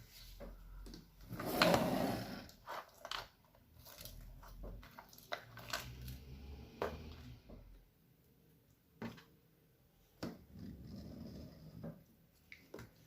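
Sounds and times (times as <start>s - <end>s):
slime squelching by hand: 2.4s - 7.5s.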